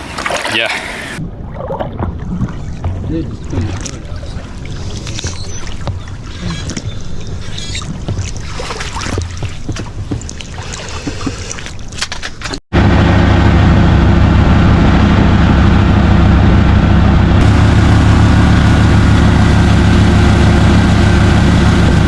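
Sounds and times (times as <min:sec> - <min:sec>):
wind: 0:00.0 - 0:22.0
loud engine drone: 0:12.7 - 0:22.0.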